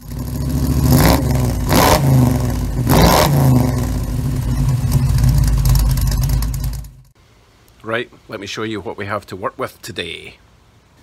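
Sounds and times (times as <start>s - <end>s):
car engine revving: 0.0s - 7.1s.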